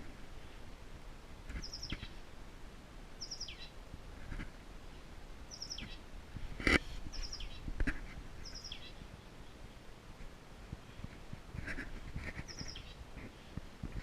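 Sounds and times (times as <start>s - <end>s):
bird calling: 1.6s - 2.2s, 3.2s - 3.8s, 5.5s - 6.0s, 8.4s - 9.6s, 12.4s - 13.6s.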